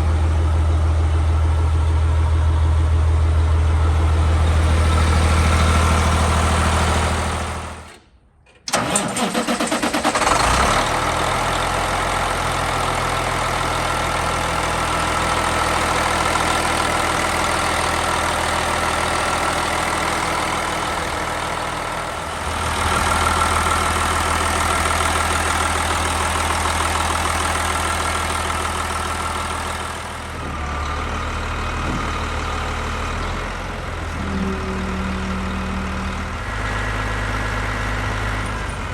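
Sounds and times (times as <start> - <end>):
diesel engine idling: 0.0 - 7.9, 8.7 - 38.9
starter cranking: 8.5 - 10.6.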